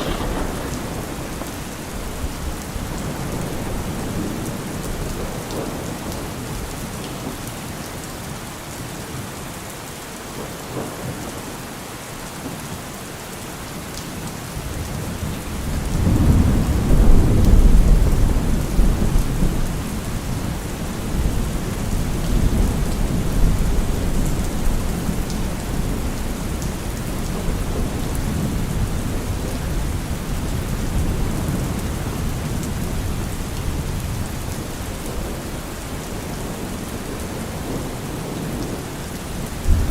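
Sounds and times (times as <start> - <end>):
thunder rumbling: 0.0 - 5.9, 37.3 - 39.9
heavy rain on a car roof: 0.0 - 39.9.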